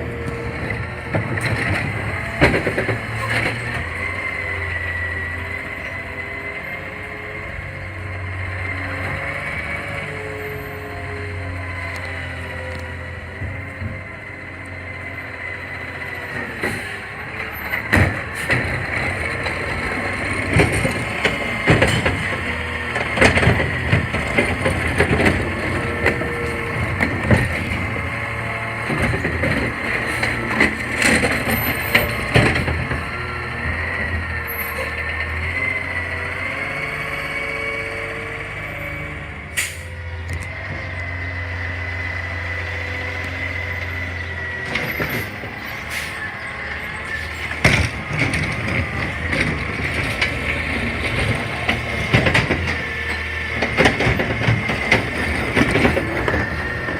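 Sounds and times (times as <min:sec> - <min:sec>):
garbage truck engine drone: 0:00.0 - 0:56.9
clanks and knocks: 0:00.2 - 0:04.0, 0:17.6 - 0:34.3, 0:47.4 - 0:56.9.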